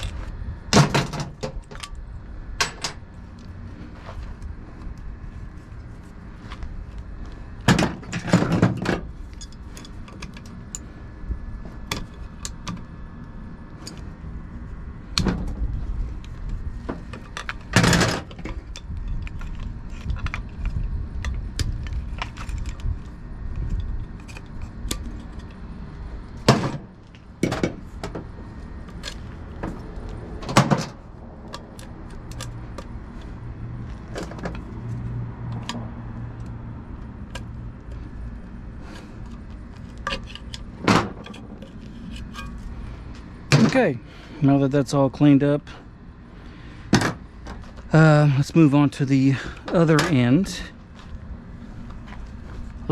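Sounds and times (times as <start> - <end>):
metal tools clinking: 9.3 - 10.8.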